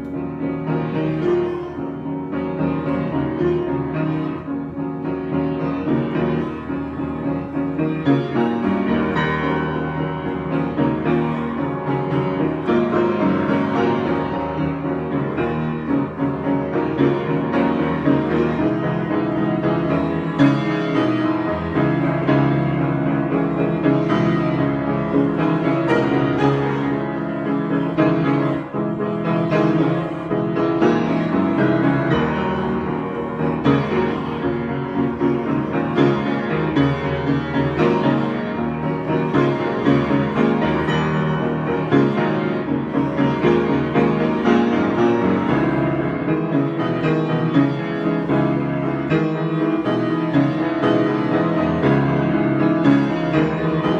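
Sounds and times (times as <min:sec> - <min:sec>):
improvised piano solo: 0:00.0 - 0:53.9.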